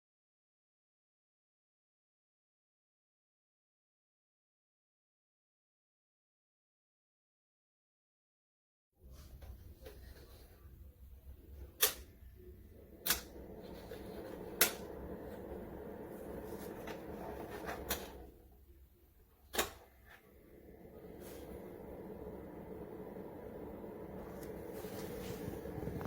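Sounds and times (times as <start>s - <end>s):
heater fan hum: 9.1s - 26.0s
heater control clicks: 11.8s - 12.2s, 13.0s - 13.5s, 14.4s - 15.2s, 19.5s - 19.9s.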